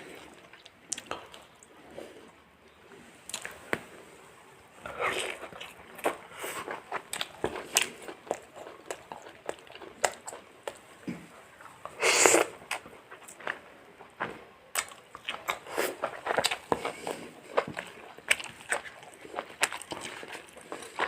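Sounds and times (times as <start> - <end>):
sharp sniff: 12.0 - 12.5.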